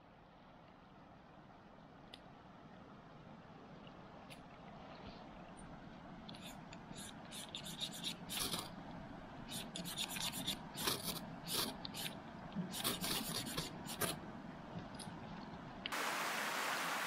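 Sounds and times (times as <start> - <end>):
irregular scraping strokes: 6.4 - 8.7, 9.5 - 14.2.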